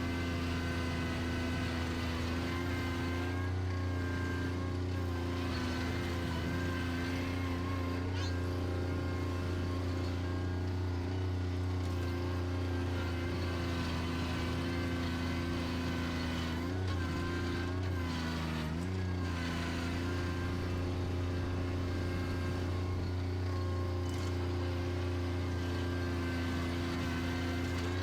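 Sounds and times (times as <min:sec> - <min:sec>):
tractor engine running: 0:08.6 - 0:28.0.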